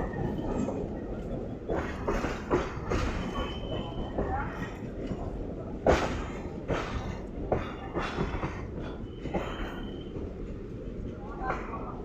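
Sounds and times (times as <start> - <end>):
electric train rumbling: 0.0 - 12.0
train wheels knocking on rail joints: 1.6 - 10.4.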